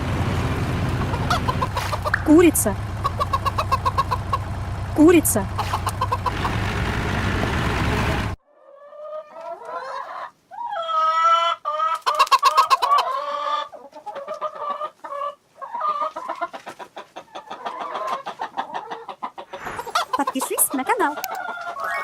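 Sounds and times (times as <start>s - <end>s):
hen clucking and cackling: 0.2s - 6.8s, 8.6s - 22.0s.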